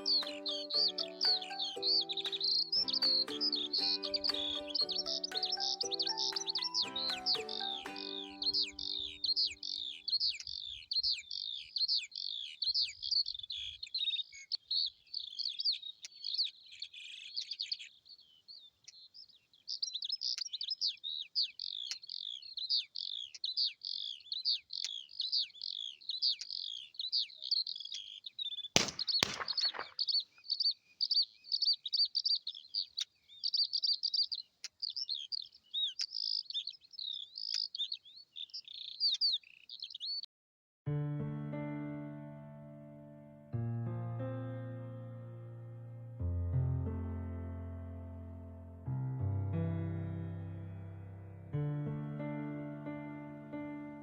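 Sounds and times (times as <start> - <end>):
small birds chirping: 0.0 - 40.3.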